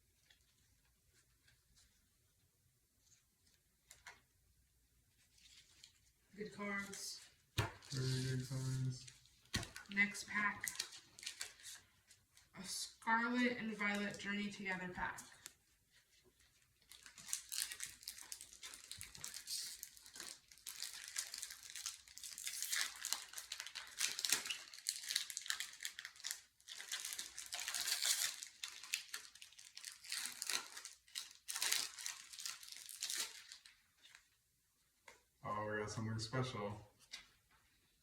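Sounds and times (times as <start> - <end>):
foil wrapper crinkling and tearing: 7.6 - 11.9, 16.4 - 34.2.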